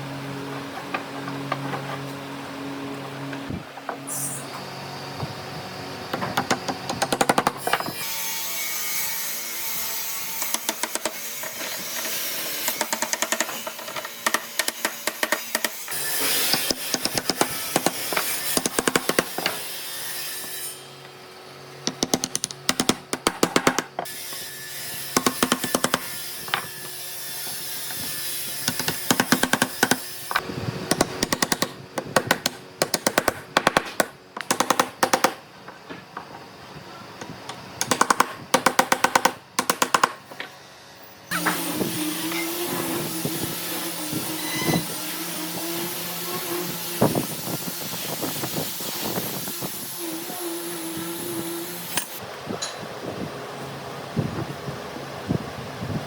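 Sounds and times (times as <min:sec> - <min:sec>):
woodworking tools clicking and tapping: 0:00.5 - 0:02.2, 0:06.1 - 0:08.0, 0:10.3 - 0:19.7, 0:21.8 - 0:24.4, 0:25.1 - 0:28.0, 0:28.6 - 0:36.5, 0:37.2 - 0:40.6.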